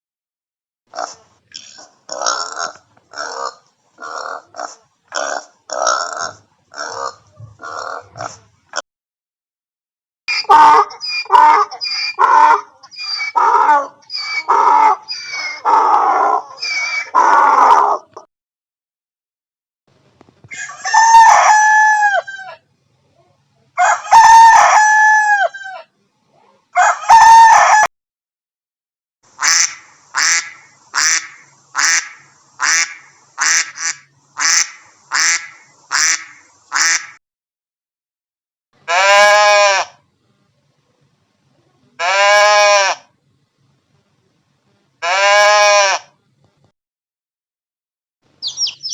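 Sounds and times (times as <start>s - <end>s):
chicken squawking: 1.0s - 8.5s, 10.3s - 18.2s, 20.5s - 22.6s, 26.8s - 27.9s, 29.4s - 37.2s, 38.9s - 40.0s, 42.0s - 43.0s, 45.0s - 46.1s, 48.4s - 48.9s
drawn-out animal call: 10.3s - 18.2s, 38.8s - 40.0s, 42.0s - 43.1s, 45.0s - 46.2s
duck quacking: 29.4s - 37.2s.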